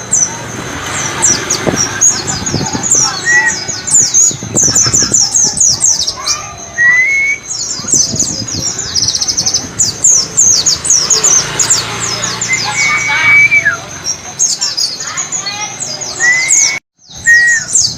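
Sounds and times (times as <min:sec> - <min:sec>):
bird chattering song: 0:00.0 - 0:17.9
lower rising whistles: 0:06.7 - 0:07.5, 0:16.2 - 0:17.9.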